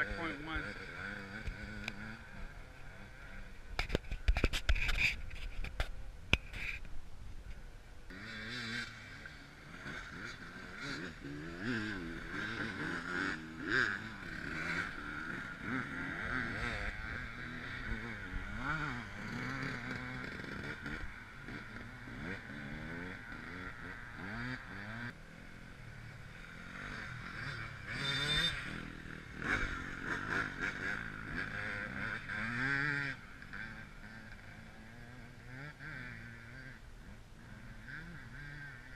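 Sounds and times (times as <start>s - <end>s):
off-road motorcycle engines revving: 0.0s - 38.9s.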